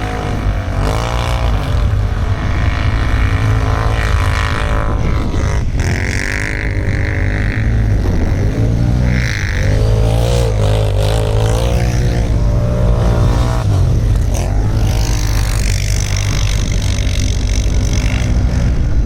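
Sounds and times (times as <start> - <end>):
atv engine revving: 0.0 - 19.0.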